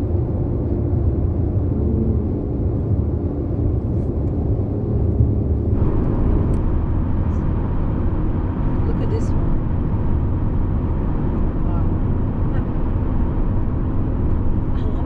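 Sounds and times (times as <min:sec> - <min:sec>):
road and engine rumble in car: 0:00.0 - 0:15.0.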